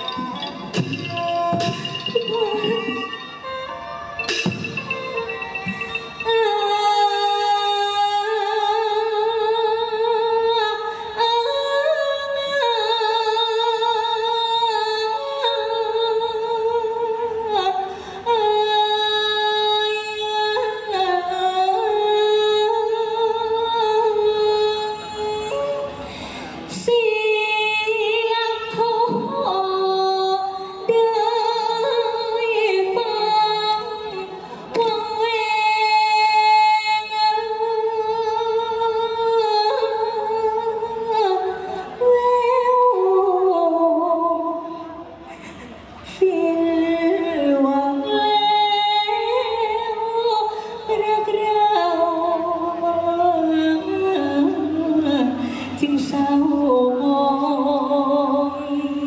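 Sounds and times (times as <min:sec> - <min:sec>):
woman singing folk-opera song: 0:01.2 - 0:03.4, 0:05.6 - 0:25.8, 0:26.7 - 0:44.8, 0:46.1 - 0:59.0.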